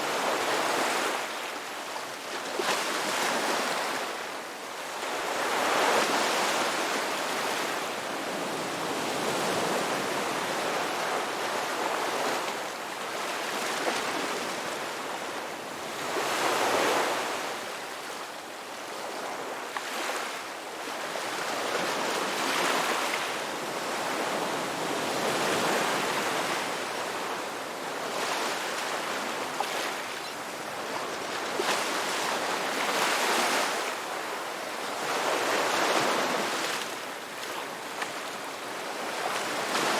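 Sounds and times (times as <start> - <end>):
ocean waves on beach: 18.8 - 39.9.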